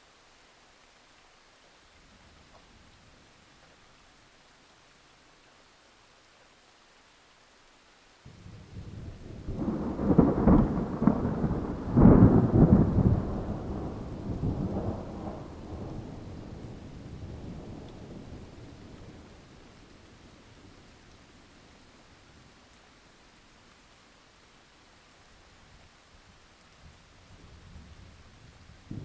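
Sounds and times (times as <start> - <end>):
faint hiss of rain: 0.0 - 29.0
thunder rolling: 8.6 - 18.5.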